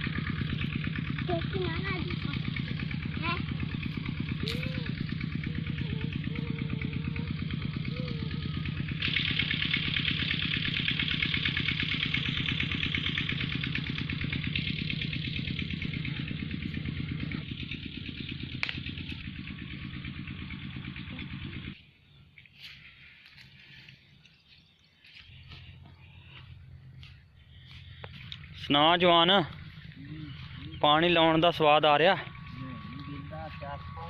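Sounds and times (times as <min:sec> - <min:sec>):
diesel engine thudding: 0:00.0 - 0:21.8.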